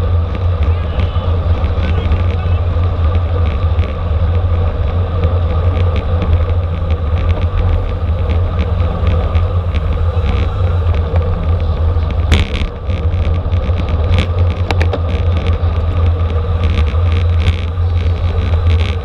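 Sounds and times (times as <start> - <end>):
wind on microphone: 0.0 - 19.0.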